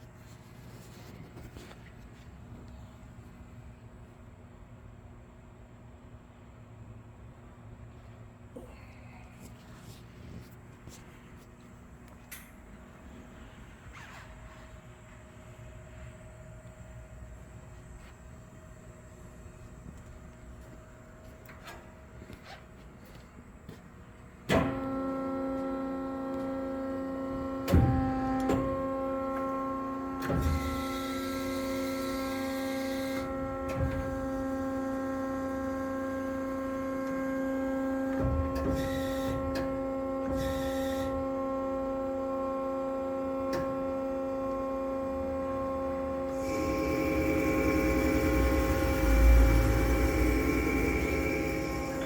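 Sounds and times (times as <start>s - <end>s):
bandsaw motor humming: 43.4s - 52.0s.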